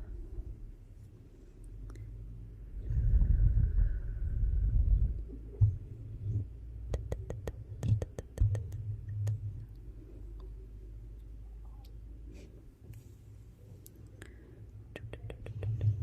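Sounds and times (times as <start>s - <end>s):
low uneven rumble: 0.0s - 6.9s.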